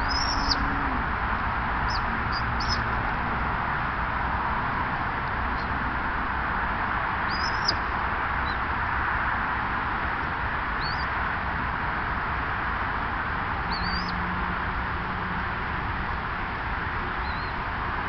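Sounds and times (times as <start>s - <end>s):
small bird chirping: 0.0s - 0.7s, 1.9s - 2.9s, 7.3s - 7.8s, 10.8s - 11.1s, 13.7s - 14.2s, 17.2s - 17.6s.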